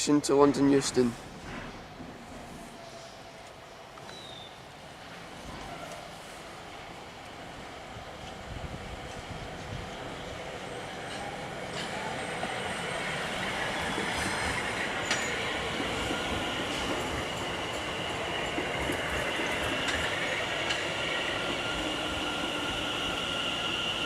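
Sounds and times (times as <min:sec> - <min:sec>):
electric train on rails: 0:00.0 - 0:24.0.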